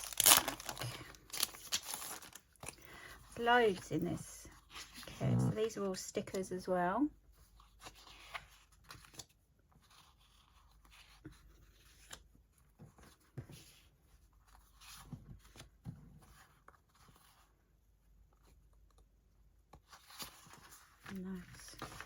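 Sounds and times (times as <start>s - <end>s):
sticker sheets rustling: 0.0s - 2.8s.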